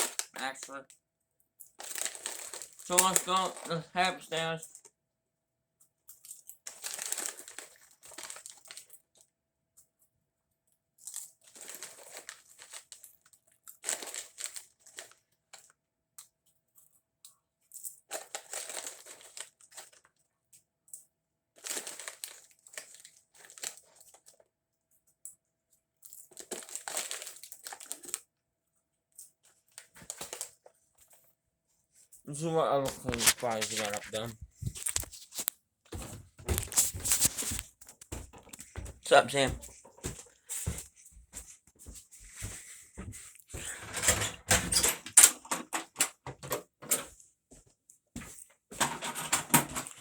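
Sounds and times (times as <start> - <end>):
rustling crinkling handling noise: 0.0 - 0.8, 1.7 - 4.9, 6.2 - 9.1, 11.0 - 15.7, 18.1 - 20.2, 21.6 - 24.5, 26.1 - 28.3, 29.3 - 50.0.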